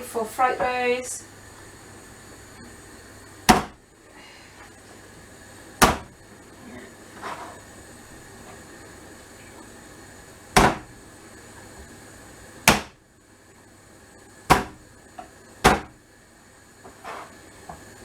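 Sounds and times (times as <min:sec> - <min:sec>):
garlic knocked on hard surface: 0:05.8 - 0:06.1, 0:10.6 - 0:10.9, 0:14.5 - 0:14.8.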